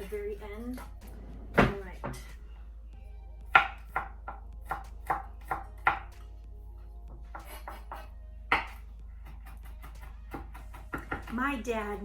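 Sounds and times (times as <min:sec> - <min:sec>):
knife chopping on cutting board: 0:03.5 - 0:06.2, 0:07.1 - 0:11.4.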